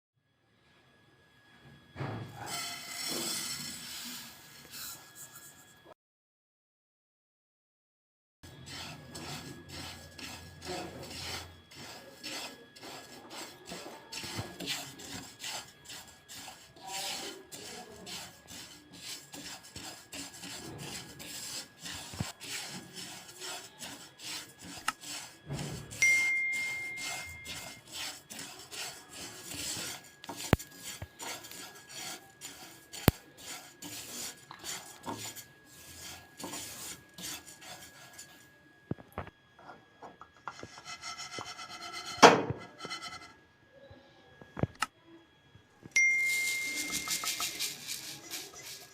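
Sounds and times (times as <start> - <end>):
spatula scraping seeds in pan: 2.4 - 5.7, 8.5 - 38.5, 40.4 - 43.4, 46.1 - 48.9
short high tone: 46.0 - 47.4.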